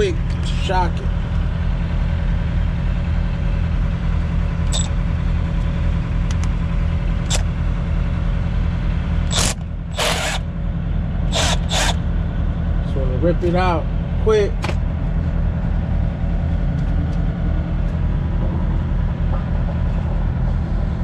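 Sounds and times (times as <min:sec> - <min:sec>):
diesel engine idling: 0:00.0 - 0:21.0
short noisy bursts: 0:09.3 - 0:10.4, 0:11.3 - 0:12.0.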